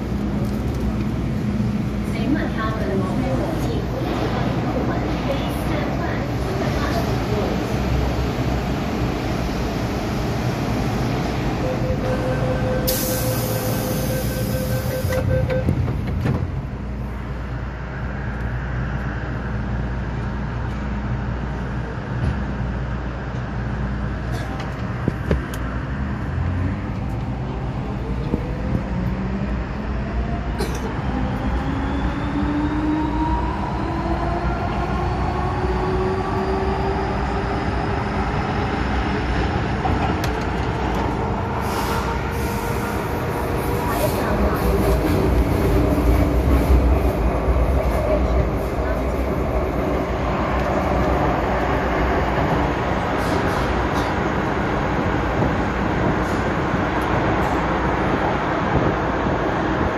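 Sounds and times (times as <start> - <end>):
wheels rumbling on rail: 0.0 - 59.9
door-closing warning beep: 11.7 - 15.9.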